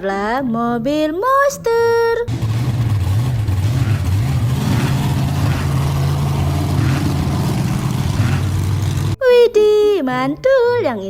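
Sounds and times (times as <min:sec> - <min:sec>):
vehicle engine droning: 0:02.3 - 0:09.2.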